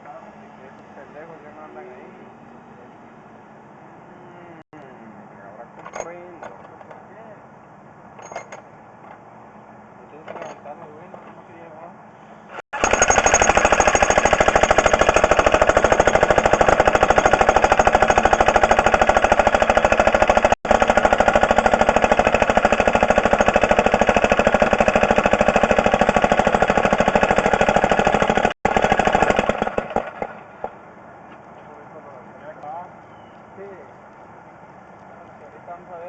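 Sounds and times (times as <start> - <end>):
jackhammer hammering: 12.7 - 30.8.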